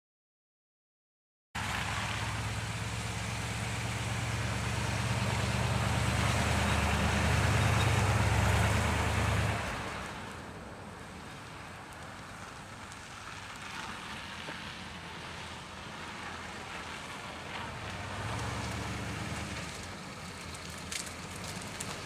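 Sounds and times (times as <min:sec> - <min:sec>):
car engine idling: 0:01.6 - 0:11.3.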